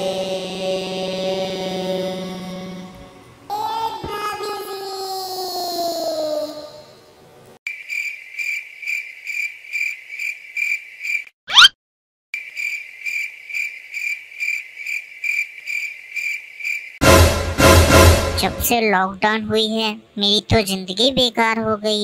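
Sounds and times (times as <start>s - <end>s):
cricket chirping: 7.7s - 11.3s, 12.4s - 17.0s
loud sweeping swish: 17.0s - 18.7s
loud music: 17.0s - 18.8s.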